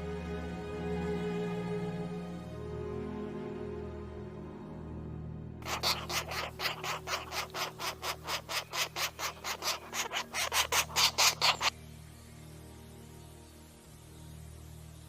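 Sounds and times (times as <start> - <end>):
soft background music: 0.0 - 15.0
woodpecker pecking wood: 5.6 - 11.7.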